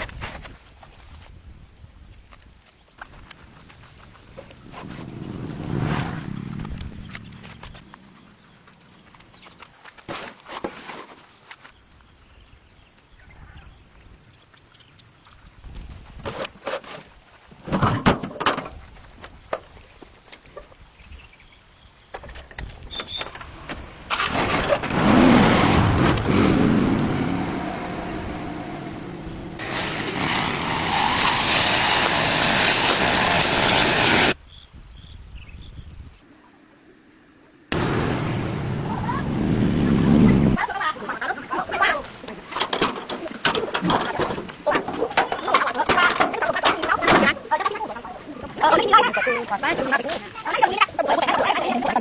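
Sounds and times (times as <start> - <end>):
vehicle engine running: 4.6 - 7.8, 25.4 - 30.9, 37.8 - 40.6.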